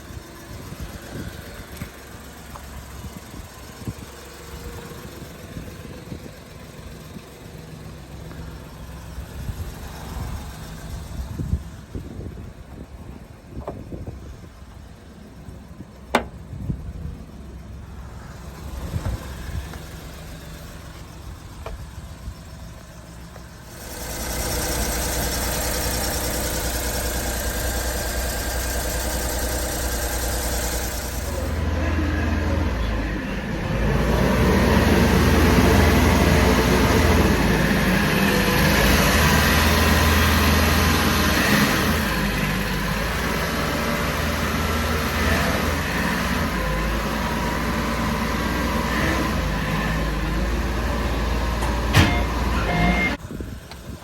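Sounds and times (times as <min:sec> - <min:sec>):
truck engine starting and idling: 0:00.0 - 0:54.0
truck engine revving: 0:16.2 - 0:53.2.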